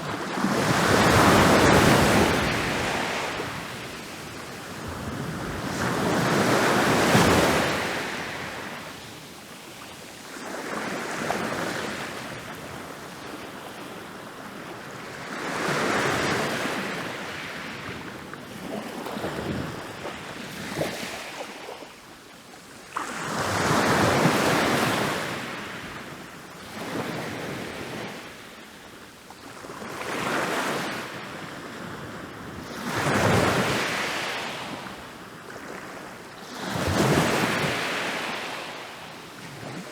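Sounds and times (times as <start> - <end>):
ocean waves breaking on beach: 0.0 - 13.8, 30.0 - 39.9.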